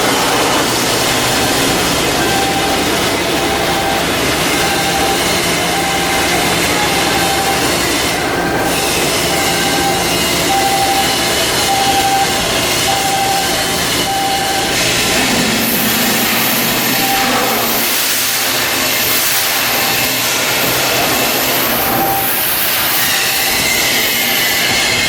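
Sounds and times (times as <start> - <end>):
hissing machinery: 0.0 - 25.0.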